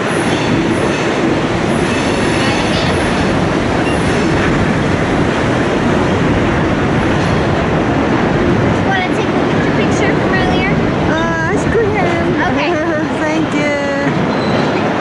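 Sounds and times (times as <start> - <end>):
train wheels rumbling on rails: 0.0 - 15.0
high wheel squeals: 14.3 - 14.8.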